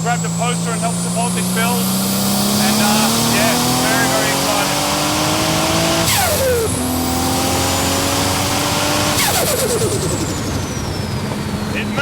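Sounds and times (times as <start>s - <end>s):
turbocharged car engine accelerating: 0.0s - 12.0s.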